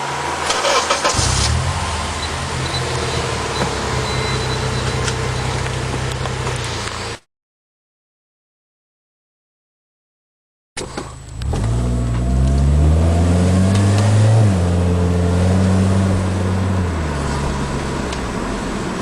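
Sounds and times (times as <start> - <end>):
car engine accelerating: 0.0 - 7.2, 10.8 - 19.0
automatic gear upshift: 10.8 - 14.5.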